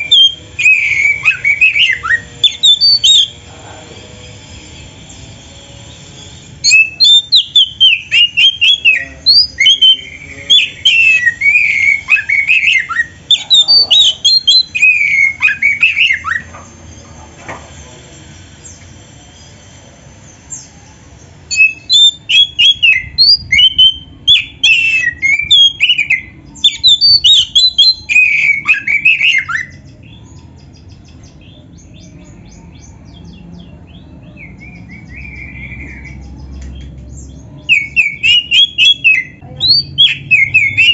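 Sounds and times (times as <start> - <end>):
magpie-robin singing: 0.0 - 3.4, 6.0 - 16.7, 20.2 - 40.9.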